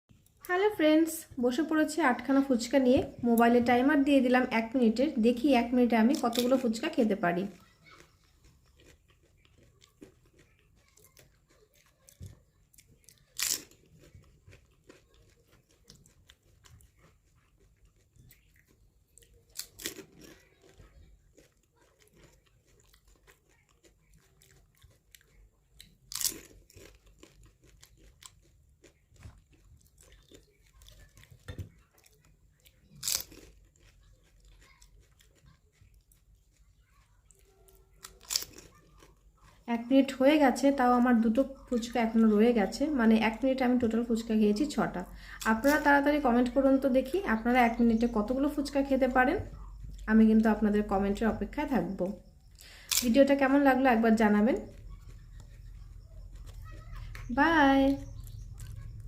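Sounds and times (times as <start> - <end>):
quiet chewing: 0.1 - 0.6, 2.3 - 59.0
crisp shells crunching: 7.6 - 36.7, 37.8 - 39.6, 52.2 - 53.6.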